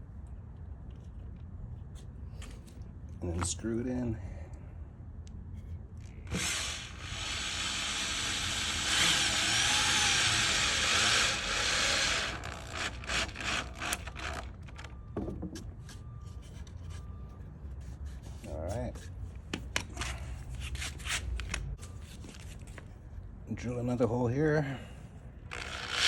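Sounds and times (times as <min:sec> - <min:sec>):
power drill driving a screw: 0:06.3 - 0:14.6, 0:25.5 - 0:26.0.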